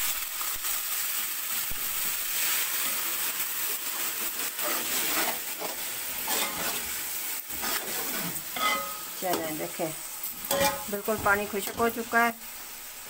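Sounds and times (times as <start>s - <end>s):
onions sizzling in hot oil: 0.0s - 13.0s
metal spatula scraping pot: 4.4s - 9.5s, 10.3s - 12.0s.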